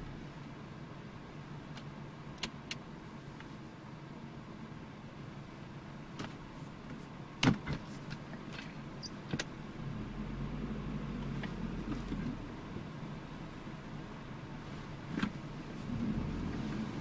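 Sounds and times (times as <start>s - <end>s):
car engine running: 0.0s - 0.9s.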